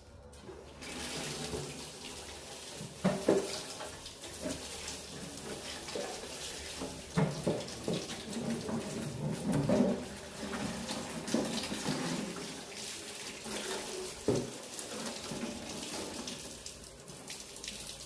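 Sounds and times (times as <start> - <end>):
tap water running: 0.2 - 18.0
splashes and knocks: 2.8 - 12.5, 13.4 - 16.1.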